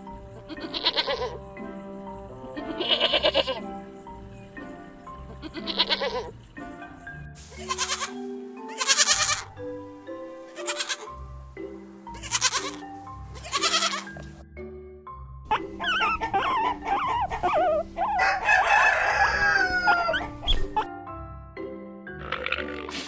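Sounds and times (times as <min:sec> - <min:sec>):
background music: 0:00.0 - 0:23.0
goat bleating: 0:00.5 - 0:01.4, 0:02.6 - 0:03.7, 0:05.3 - 0:06.3, 0:07.4 - 0:09.6, 0:10.5 - 0:11.3, 0:12.1 - 0:14.3.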